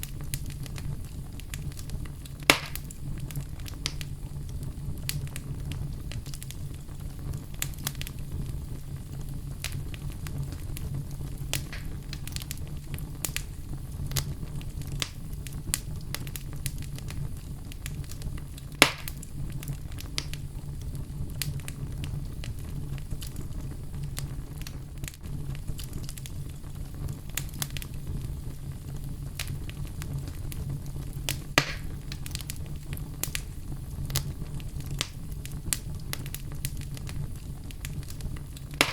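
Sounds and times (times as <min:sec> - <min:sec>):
fire popping: 0:00.0 - 0:38.9
wood fire crackling: 0:00.0 - 0:38.9.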